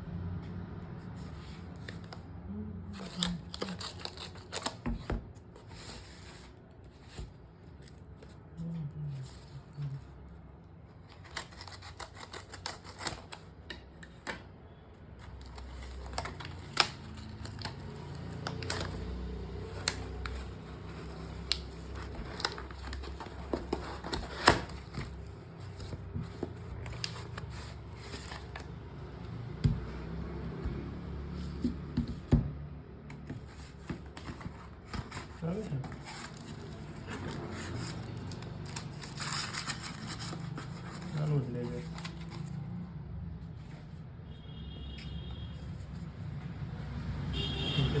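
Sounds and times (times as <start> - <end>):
cardboard and plastic packaging clicks: 15.2 - 28.7.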